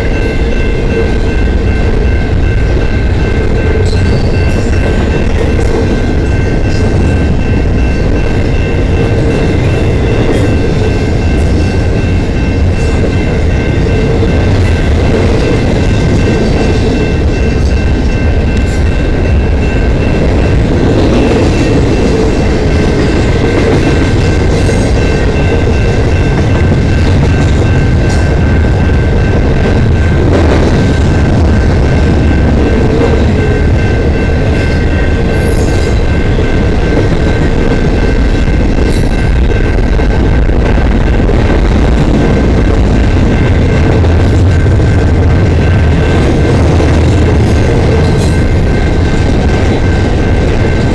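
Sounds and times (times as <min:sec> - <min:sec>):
freight train wheels rumbling: 0:00.0 - 0:50.9
rail joint clicks: 0:00.0 - 0:50.9.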